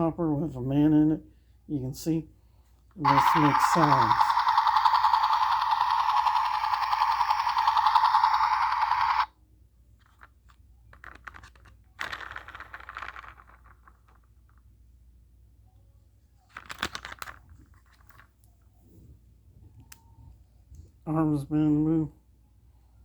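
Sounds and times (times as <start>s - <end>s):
toy helicopter electronic sound: 3.0s - 9.3s
plastic toy parts rattling: 3.1s - 9.3s, 10.0s - 14.6s, 16.5s - 18.3s.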